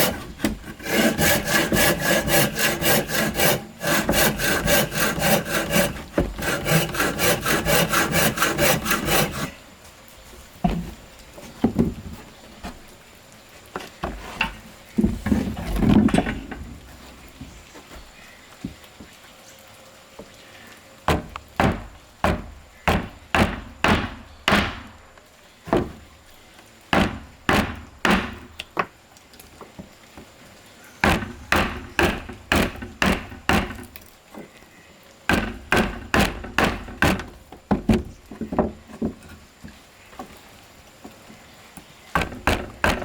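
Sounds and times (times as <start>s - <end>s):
tool striking wood: 0.0s - 9.5s, 21.1s - 24.9s, 27.0s - 28.4s, 31.0s - 33.9s, 35.3s - 38.0s, 42.2s - 43.0s.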